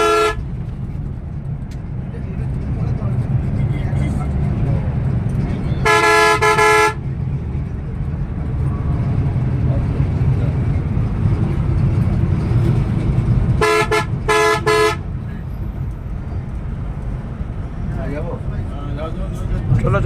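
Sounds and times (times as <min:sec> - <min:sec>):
vehicle horn blasts: 0:00.0 - 0:00.4, 0:05.8 - 0:07.1, 0:13.5 - 0:15.2
coach engine low rumble: 0:00.0 - 0:20.0.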